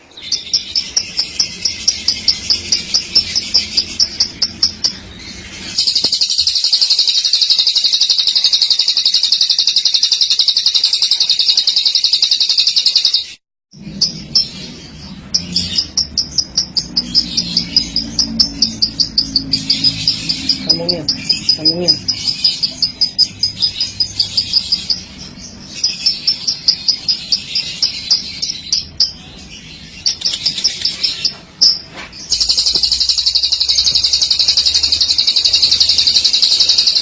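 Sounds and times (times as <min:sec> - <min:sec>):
high bird chirping: 0:00.0 - 0:37.0
lovebird rolling trill: 0:00.3 - 0:13.4, 0:31.7 - 0:37.0.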